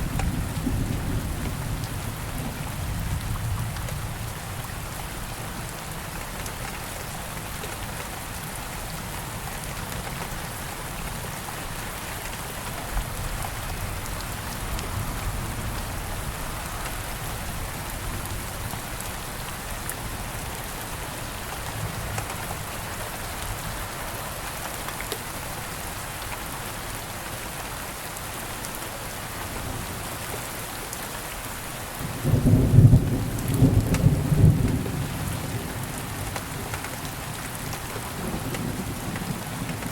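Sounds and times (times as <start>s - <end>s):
low rumble of thunder: 0.0s - 5.0s, 32.0s - 39.9s
steady rain hissing: 0.0s - 39.9s.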